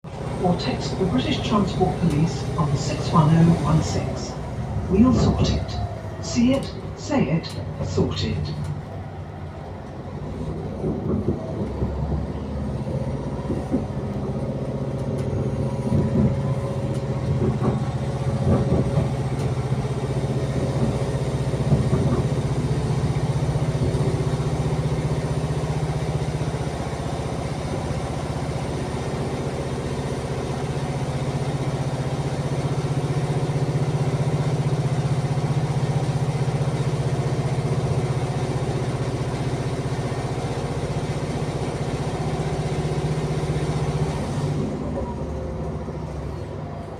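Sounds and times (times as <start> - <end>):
train running drone: 0.0 - 46.9
wheels clicking over rail joints: 9.8 - 24.3.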